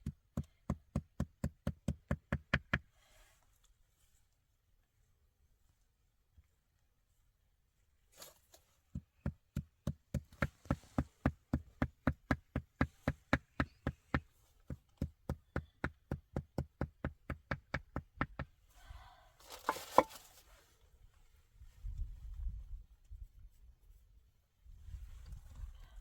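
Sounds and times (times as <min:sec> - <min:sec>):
rustling and scraping: 0:08.0 - 0:08.9, 0:19.4 - 0:24.1.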